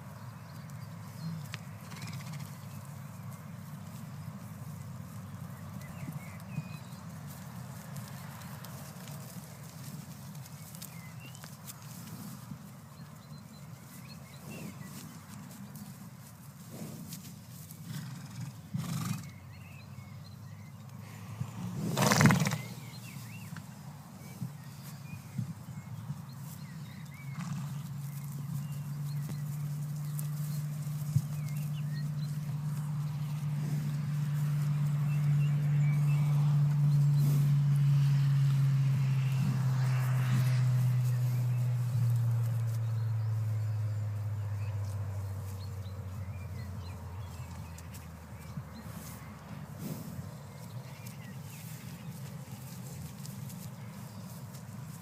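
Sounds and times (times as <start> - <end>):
small birds chirping: 0.0 - 55.0
steady low rumble: 19.3 - 55.0.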